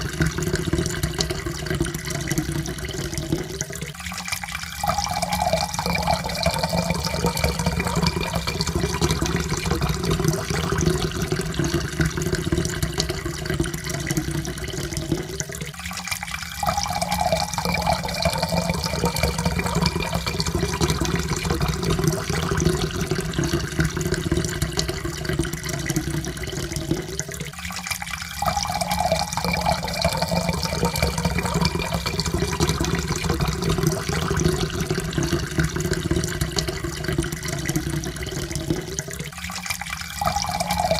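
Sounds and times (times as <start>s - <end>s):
water pouring into a cup: 0.0s - 40.9s
rising tone of filling cup: 4.7s - 15.3s, 16.6s - 27.0s, 28.2s - 38.9s, 40.0s - 40.9s.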